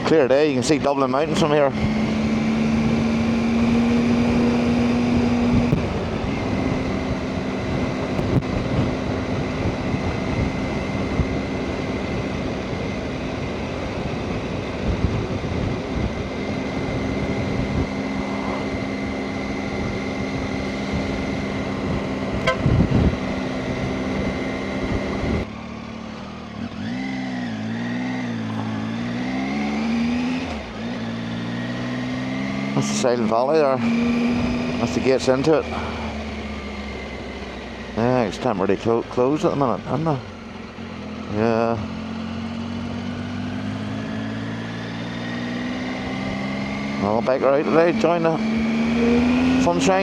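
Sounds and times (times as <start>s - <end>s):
motorcycle engine running: 0.0s - 50.0s
wind rush on microphone: 5.0s - 12.2s, 13.4s - 25.5s.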